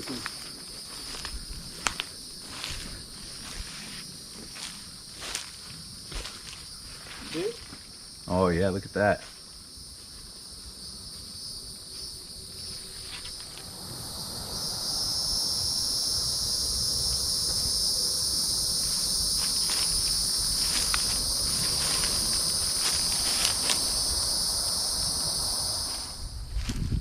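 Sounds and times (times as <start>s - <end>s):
footsteps on leaf litter: 0.0s - 7.9s, 18.8s - 24.3s
insects droning: 0.0s - 27.0s.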